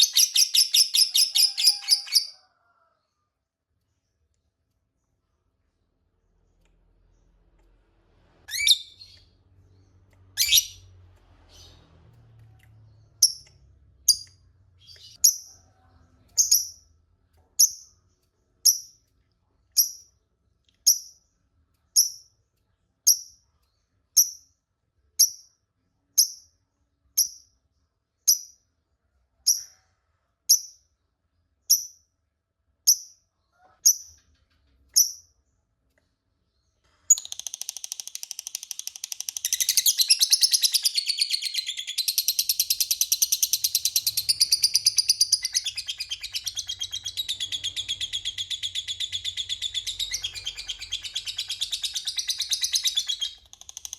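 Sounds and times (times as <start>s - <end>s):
bird chattering trill: 0.0s - 2.3s, 10.4s - 10.8s, 37.1s - 53.9s
bird chirping: 0.0s - 2.5s, 3.8s - 24.6s, 32.9s - 53.9s.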